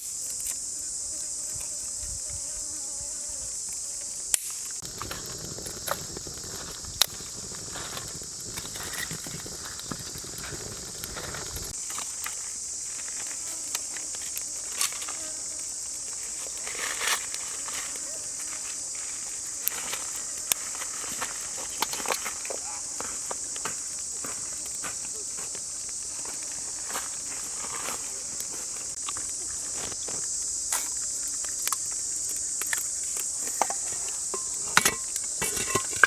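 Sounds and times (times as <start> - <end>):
jungle insects droning: 0.0 - 36.0
footsteps: 16.1 - 31.1.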